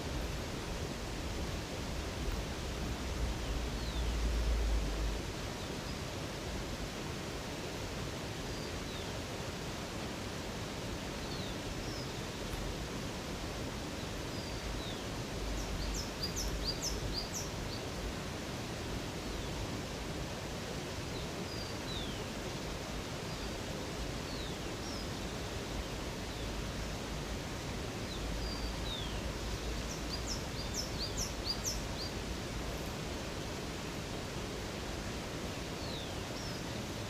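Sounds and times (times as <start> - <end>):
river water rushing: 0.0 - 37.0
birds chirping: 28.1 - 33.0.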